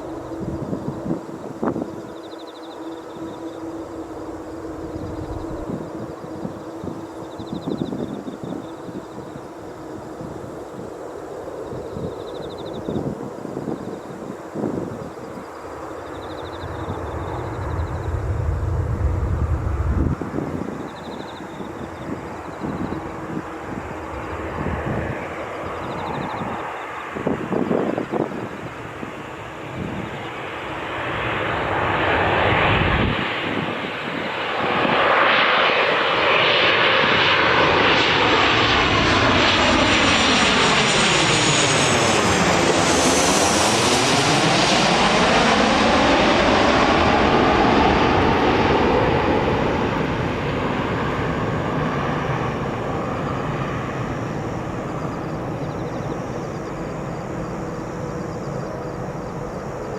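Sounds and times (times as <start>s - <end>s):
jet airliner flying past: 0.0s - 59.9s.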